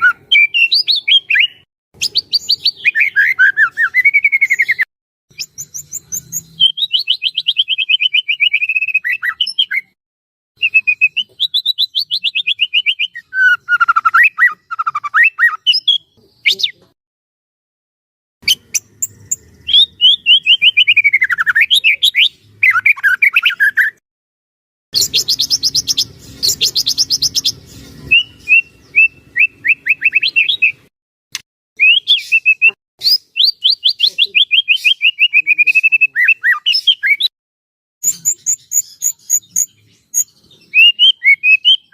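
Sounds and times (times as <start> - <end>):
bird singing ringing trills: 0.0 - 10.0, 18.4 - 24.0, 25.0 - 30.9, 38.0 - 41.9.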